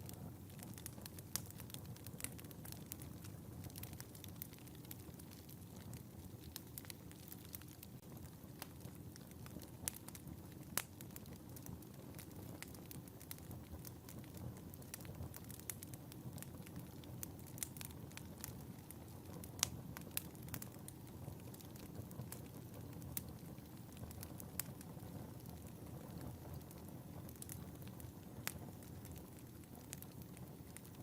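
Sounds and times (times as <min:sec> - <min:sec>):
fire crackling and popping: 0:00.0 - 0:31.0.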